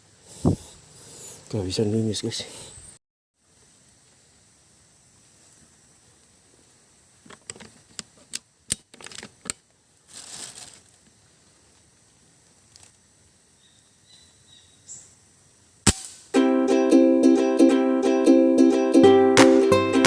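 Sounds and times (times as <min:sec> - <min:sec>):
sharp handling clicks and knocks: 0:07.2 - 0:09.7
short rustle: 0:10.0 - 0:11.9.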